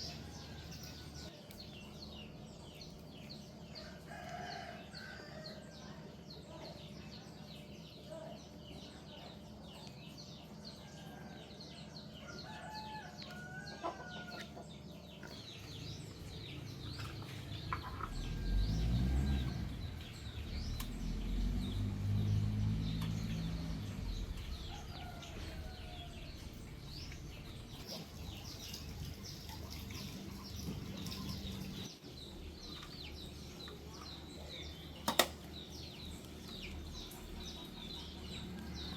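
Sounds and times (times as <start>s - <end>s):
small birds chirping: 0.0s - 38.9s
low rumble: 16.1s - 27.9s.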